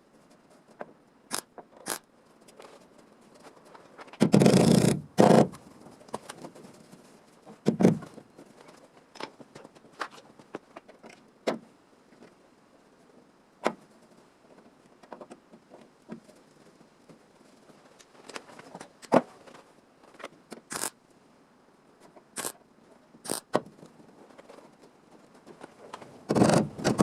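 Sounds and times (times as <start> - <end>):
rough scraping: 20.7 - 20.9.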